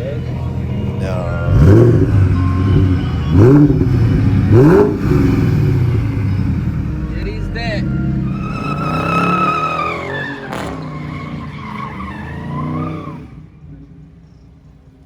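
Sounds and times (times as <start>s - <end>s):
car engine running: 0.0s - 13.6s
car tyres squealing: 0.3s - 13.9s
sharp crack: 8.3s - 12.9s.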